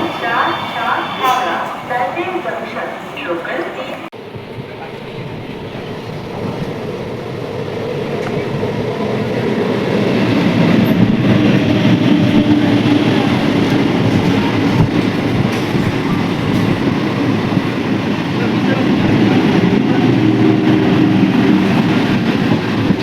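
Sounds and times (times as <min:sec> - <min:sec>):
train rumbling past: 0:00.0 - 0:23.0
wheel clacks over rail joints: 0:13.5 - 0:17.6.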